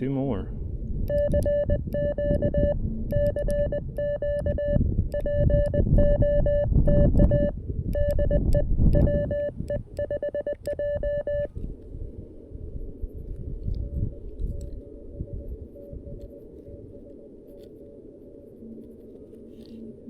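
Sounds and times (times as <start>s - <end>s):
morse code tone: 1.1s - 11.5s.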